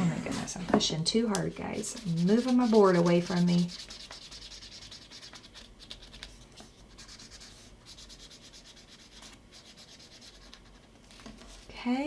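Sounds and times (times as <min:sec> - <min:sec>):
marker scratching on paper: 0:01.8 - 0:10.9.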